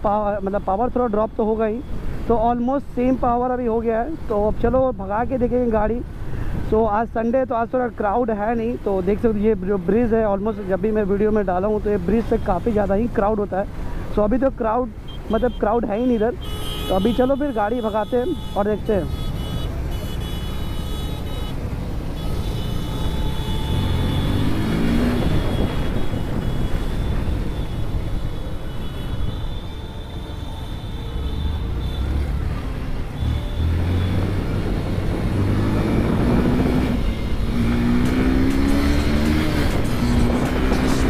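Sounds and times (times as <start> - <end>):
motorcycle engine accelerating: 33.8 - 41.0.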